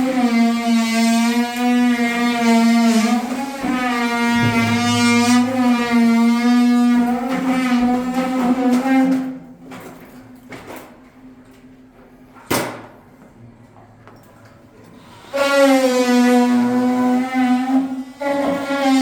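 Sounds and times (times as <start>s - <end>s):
power tool motor buzzing: 4.4s - 5.8s.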